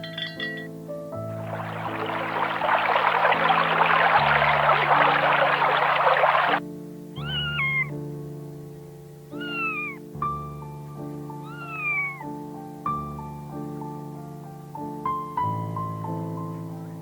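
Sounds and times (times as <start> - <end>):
soft piano music: 0.0 - 17.0
cat meowing: 7.2 - 7.9, 9.3 - 10.0, 11.4 - 12.3.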